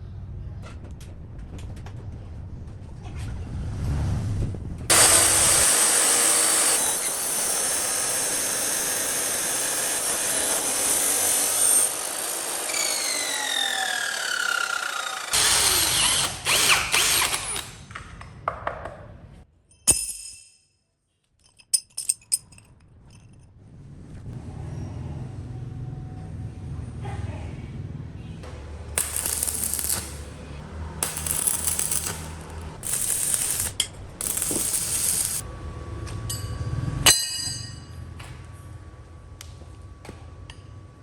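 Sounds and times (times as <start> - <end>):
handheld power tool running: 4.9 - 17.8, 29.0 - 35.4.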